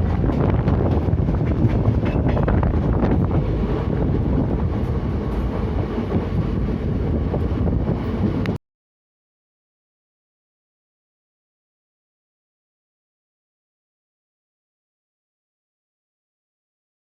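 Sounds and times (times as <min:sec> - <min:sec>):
wheels clicking over rail joints: 0:00.0 - 0:06.4
train rumbling: 0:00.0 - 0:08.6.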